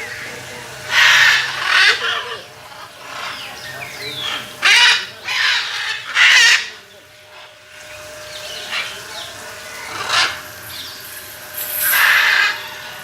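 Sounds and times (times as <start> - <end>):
parrots squawking: 0.0 - 11.0, 11.7 - 13.0.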